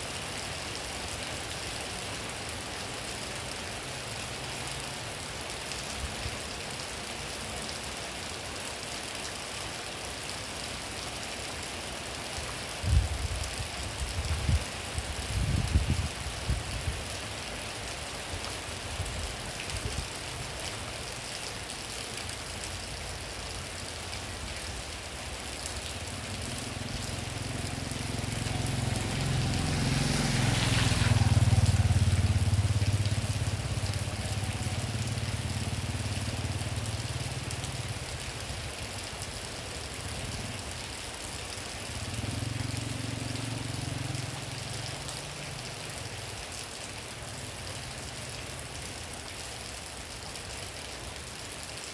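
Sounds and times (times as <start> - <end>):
steady rain falling: 0.0 - 51.9
vehicle engine passing by: 26.1 - 37.9, 41.9 - 46.0.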